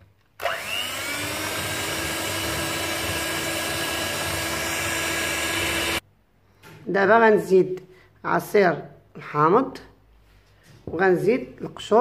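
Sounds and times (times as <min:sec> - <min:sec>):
electric mixer motor whine: 0:00.4 - 0:06.0.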